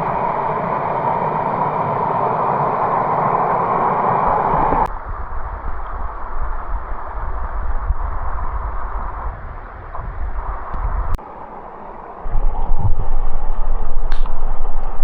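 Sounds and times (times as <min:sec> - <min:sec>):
water rushing over cascade: 0:00.0 - 0:04.9
wind rumble on microphone: 0:00.0 - 0:15.0.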